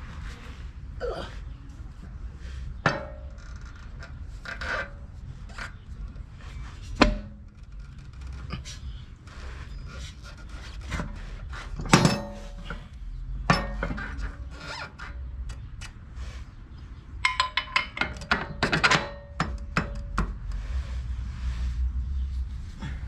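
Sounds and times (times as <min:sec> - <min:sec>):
steel parts clanking: 0:11.8 - 0:12.9.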